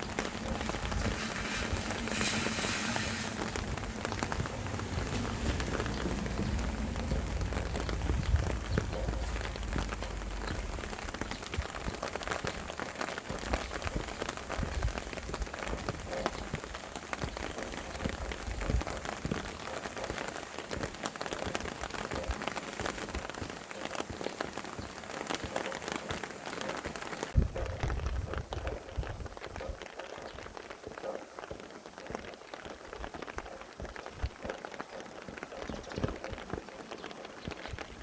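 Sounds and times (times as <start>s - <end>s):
low wind gusts: 0.0s - 23.8s
rain falling: 0.0s - 38.0s.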